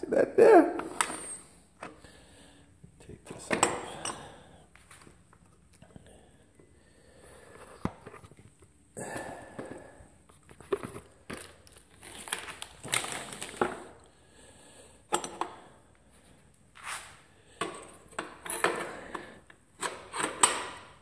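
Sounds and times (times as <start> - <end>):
hands rustling and crinkling parts: 4.7 - 5.9, 9.4 - 14.1.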